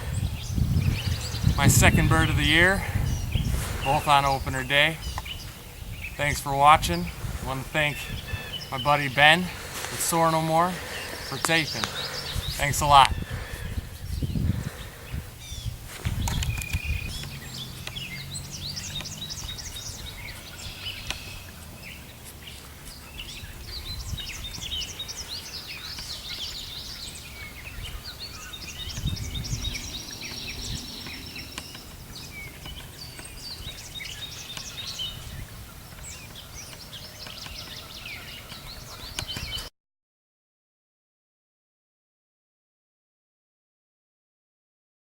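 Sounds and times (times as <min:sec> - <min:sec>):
low rumble on microphone: 0:00.0 - 0:10.2, 0:10.8 - 0:25.2, 0:26.6 - 0:36.7
songbirds chirping and trilling: 0:00.0 - 0:39.7.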